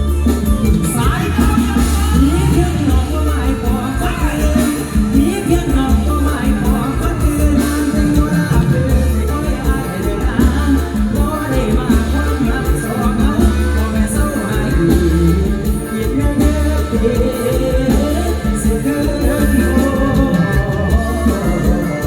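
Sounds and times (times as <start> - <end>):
heavy bass: 0.0 - 22.0
live band music: 0.0 - 22.0
person singing: 0.0 - 22.0.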